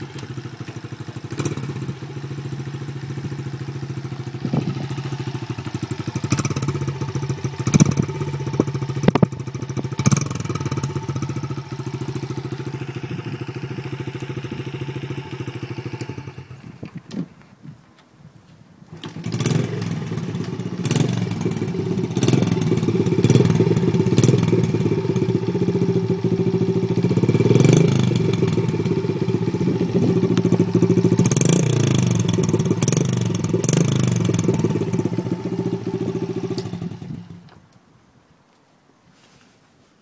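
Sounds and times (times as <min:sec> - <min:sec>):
small engine exhaust revving: 0:00.0 - 0:16.9, 0:18.9 - 0:37.5.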